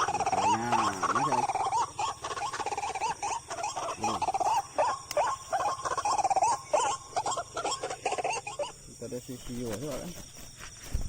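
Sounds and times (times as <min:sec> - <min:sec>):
waterhen squawking calls: 0:00.0 - 0:08.8.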